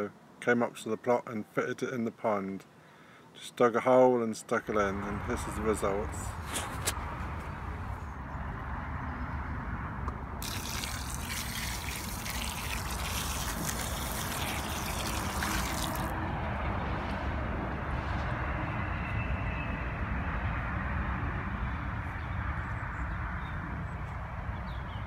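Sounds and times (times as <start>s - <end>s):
water from hose splashing: 10.4s - 16.1s.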